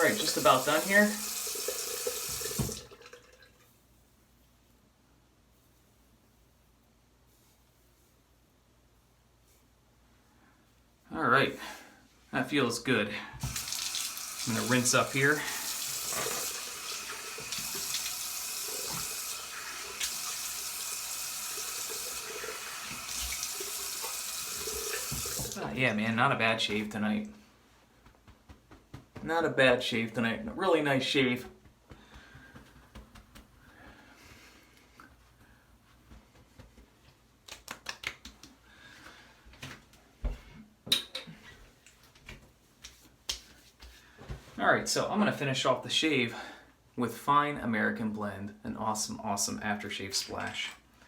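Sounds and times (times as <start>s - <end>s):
sink tap running: 0.0s - 3.2s, 13.4s - 25.6s.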